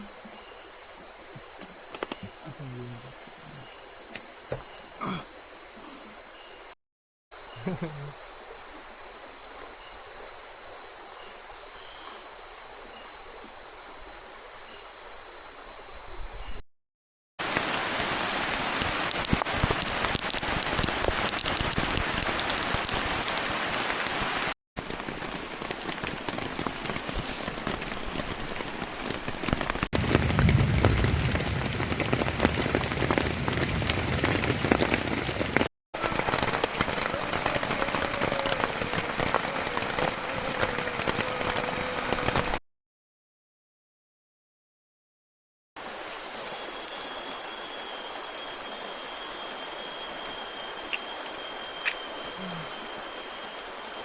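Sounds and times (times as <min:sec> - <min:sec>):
heavy rain pouring: 0:17.4 - 0:42.6
deep rumble: 0:30.0 - 0:35.7.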